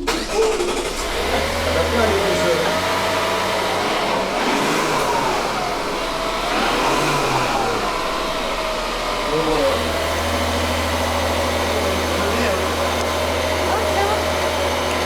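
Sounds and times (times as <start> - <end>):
car engine humming: 0.0 - 15.0
faint voices: 5.0 - 15.0.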